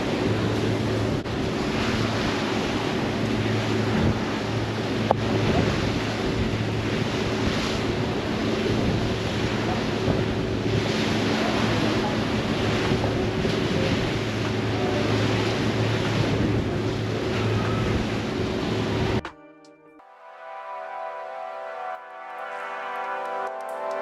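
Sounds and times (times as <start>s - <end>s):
ferry engine drone: 0.0s - 19.2s, 20.0s - 24.0s
water rushing past boat: 0.0s - 19.2s
wind on microphone: 0.0s - 19.2s.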